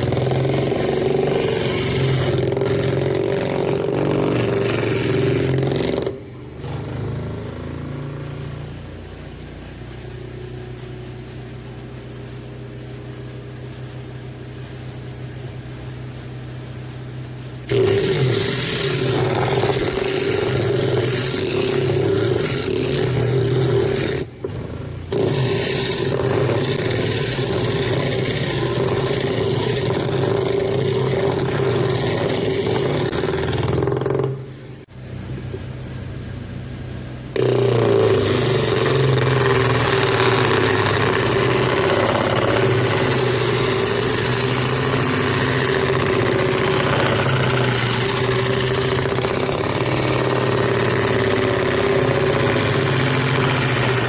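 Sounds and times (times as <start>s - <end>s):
disc sander motor running: 37.4s - 54.0s.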